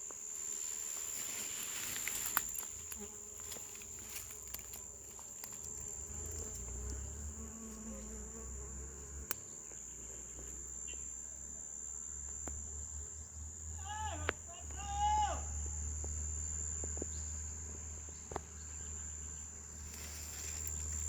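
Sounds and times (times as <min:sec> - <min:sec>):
bees buzzing: 0:00.0 - 0:10.8
high-pitched insect tone: 0:00.0 - 0:14.6, 0:15.5 - 0:21.0.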